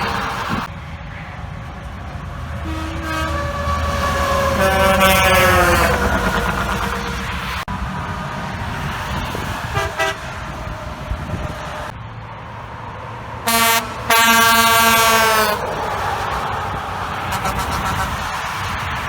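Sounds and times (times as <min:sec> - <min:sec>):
highway traffic noise: 0:00.0 - 0:19.0
truck air horn: 0:02.6 - 0:07.6, 0:09.7 - 0:10.4, 0:13.4 - 0:15.8, 0:17.2 - 0:18.5.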